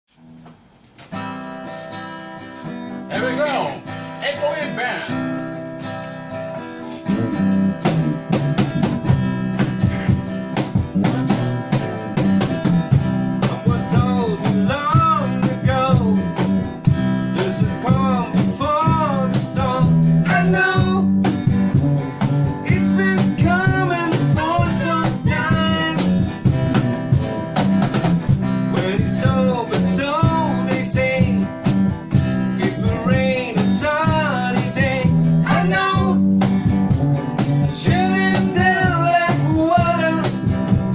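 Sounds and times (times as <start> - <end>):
rock band playing: 1.2 - 40.9.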